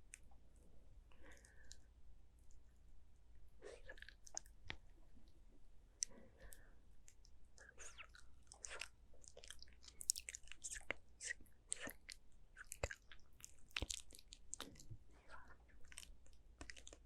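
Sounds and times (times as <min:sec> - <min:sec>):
wet lip and tongue clicks: 0:07.0 - 0:14.9.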